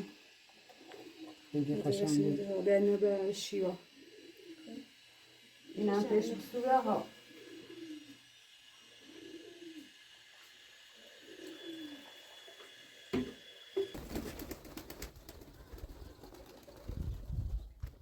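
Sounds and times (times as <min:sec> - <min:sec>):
pigeon cooing: 0:00.0 - 0:02.2, 0:03.7 - 0:10.2, 0:10.8 - 0:12.6.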